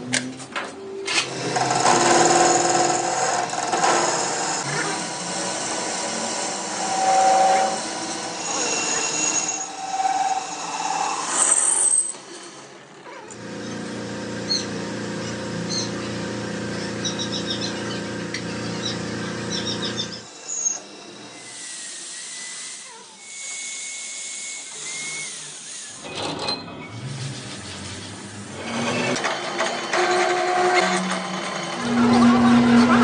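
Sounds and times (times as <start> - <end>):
electric motor humming: 13.4 - 22.9.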